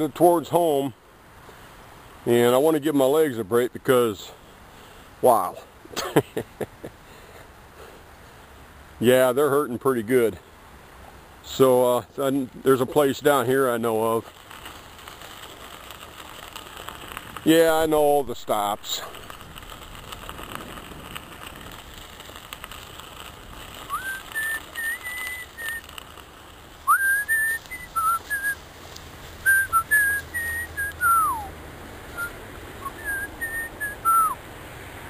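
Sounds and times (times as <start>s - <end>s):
person whistling a tune: 23.9s - 25.8s, 26.9s - 28.6s, 29.5s - 31.5s, 32.2s - 34.4s.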